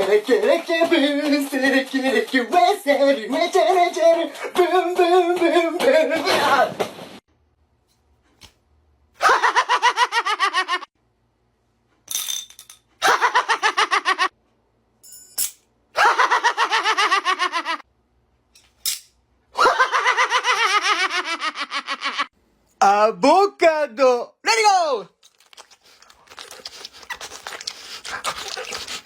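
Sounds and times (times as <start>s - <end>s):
person laughing: 9.2s - 10.9s, 13.0s - 14.3s, 16.0s - 17.8s, 19.6s - 22.3s.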